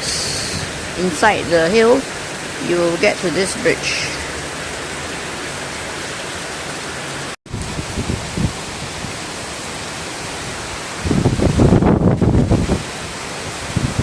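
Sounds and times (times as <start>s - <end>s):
wind gusts on microphone: 0.0s - 2.6s, 7.5s - 14.0s
heavy rain falling: 0.0s - 14.0s.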